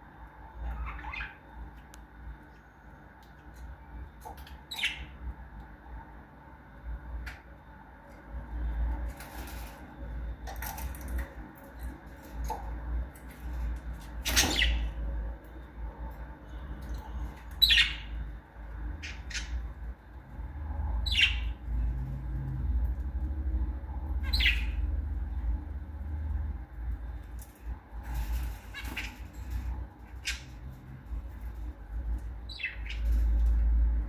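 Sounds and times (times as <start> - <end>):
low steady rumble: 0.0 - 34.0
parrots calling: 0.6 - 1.5, 4.7 - 5.2, 14.2 - 15.0, 17.4 - 18.2, 19.0 - 19.7, 21.0 - 21.6, 24.0 - 25.0, 28.6 - 30.7, 32.5 - 33.6.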